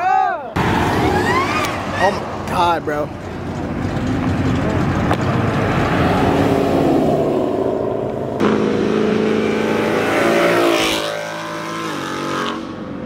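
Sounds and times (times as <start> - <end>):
car engine revving hard: 5.6 - 12.8.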